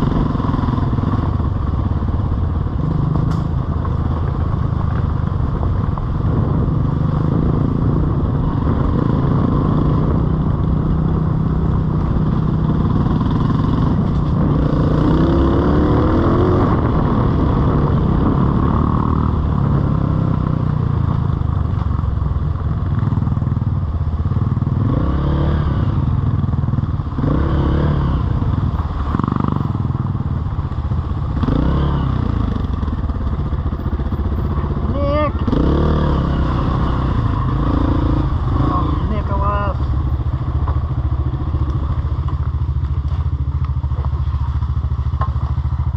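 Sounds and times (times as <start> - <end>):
off-road vehicle engine revving: 6.4 - 20.5, 24.8 - 26.0, 27.1 - 29.7, 31.3 - 32.8, 34.7 - 39.9.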